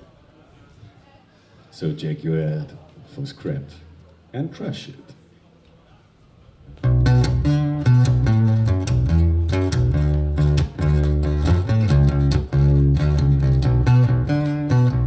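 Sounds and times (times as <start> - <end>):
deep sustained bass notes: 6.8 - 15.0
quick picked guitar notes: 6.8 - 15.0.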